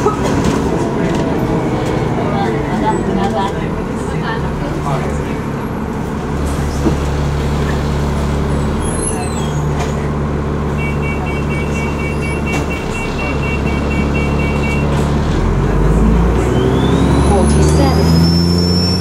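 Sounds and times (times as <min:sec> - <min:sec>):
bus diesel engine running: 0:00.0 - 0:19.0
rapid high beeping: 0:10.8 - 0:14.9.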